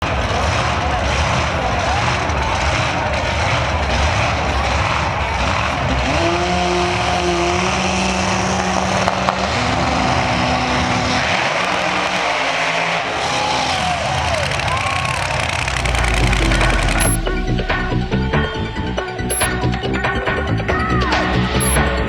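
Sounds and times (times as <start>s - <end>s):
loud engine at high revs: 5.5s - 13.6s, 14.4s - 18.2s.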